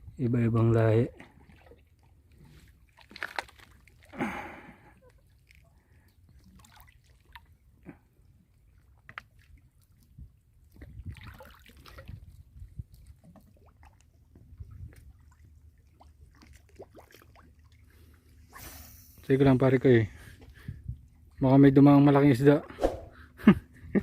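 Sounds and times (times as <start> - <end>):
water sloshing at shore: 1.0 - 21.5
small splashes and clicks: 1.5 - 4.1, 5.0 - 7.5, 8.8 - 17.8.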